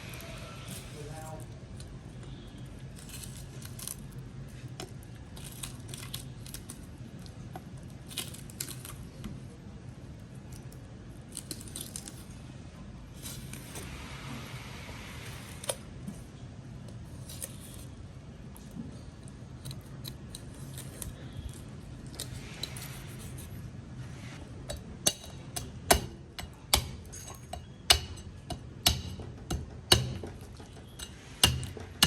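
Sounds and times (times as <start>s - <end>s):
steady low hum: 12.3s - 32.0s
metal kitchen tools scraping fish: 24.4s - 32.0s.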